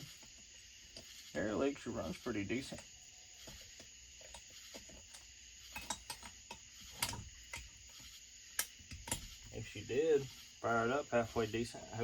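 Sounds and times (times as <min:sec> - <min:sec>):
hand tools clicking and tapping: 0:03.5 - 0:07.7, 0:08.6 - 0:09.3.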